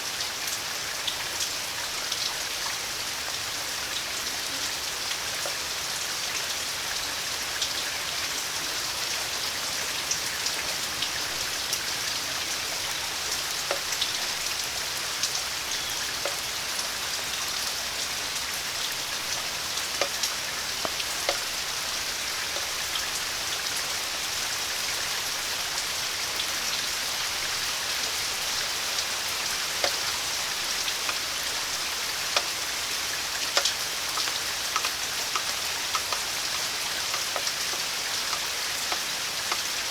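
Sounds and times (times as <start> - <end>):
steady rain hiss: 0.0 - 39.9
sharp drip ticks: 12.8 - 23.5, 28.3 - 39.9.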